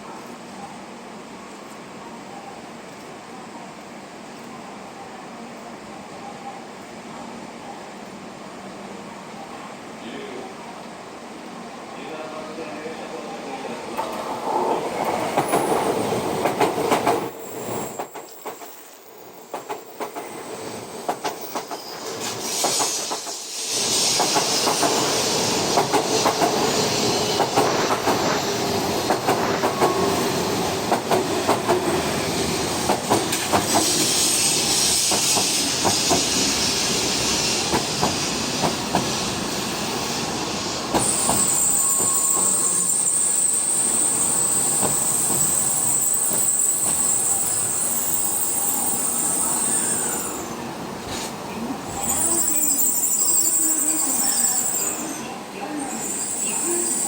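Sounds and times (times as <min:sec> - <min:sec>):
train wheels clicking over rail joints: 0:24.0 - 0:30.1, 0:30.8 - 0:32.0, 0:32.8 - 0:36.5, 0:37.6 - 0:39.2
high wheel squeal: 0:41.0 - 0:50.6, 0:52.0 - 0:57.0.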